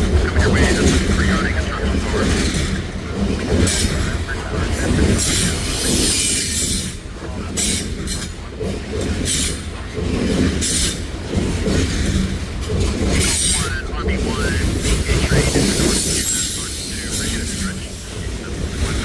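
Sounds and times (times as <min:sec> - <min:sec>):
train wheels rumbling on rail: 0:00.0 - 0:19.0
wheels screeching: 0:01.9 - 0:19.0.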